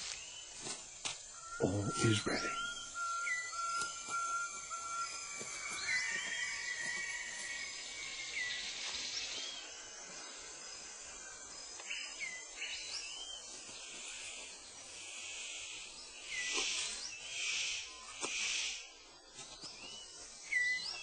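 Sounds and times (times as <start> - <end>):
insect chorus buzzing: 0.0 - 21.0
whistled bird notes: 1.2 - 13.5, 19.6 - 21.0.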